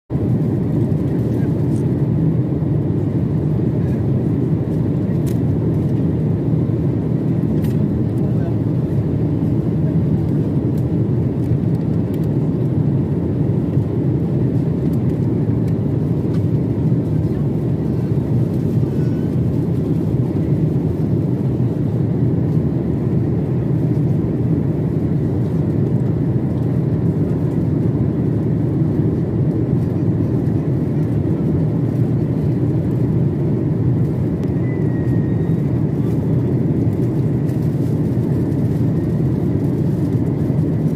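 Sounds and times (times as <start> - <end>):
airliner cabin rumble: 0.1 - 40.9.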